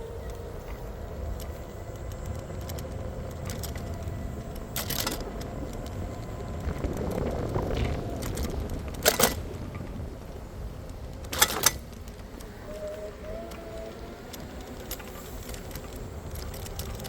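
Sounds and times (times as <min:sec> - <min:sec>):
low vehicle rumble: 0:00.0 - 0:17.0
brief rattle: 0:06.7 - 0:10.0.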